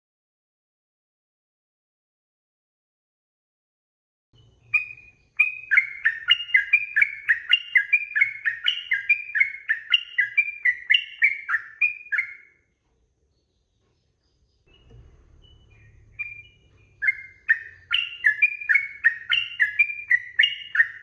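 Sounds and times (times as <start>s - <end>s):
bird singing bubbling notes: 4.4s - 12.5s, 14.6s - 21.0s.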